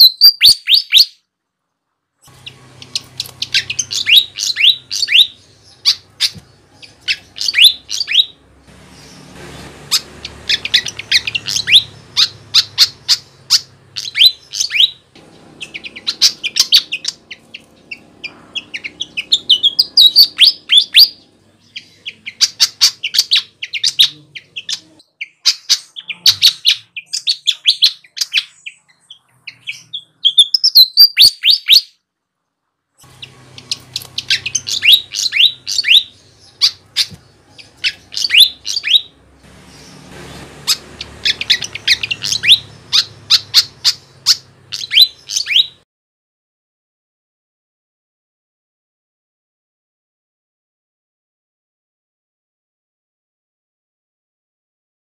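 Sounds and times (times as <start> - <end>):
flycatcher chirping: 2.8 - 24.9, 33.2 - 45.7.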